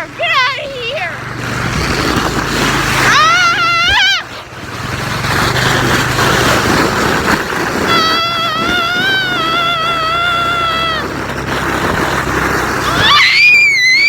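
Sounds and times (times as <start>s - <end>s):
person screaming: 3.1s - 4.3s, 7.9s - 11.1s, 12.8s - 14.0s.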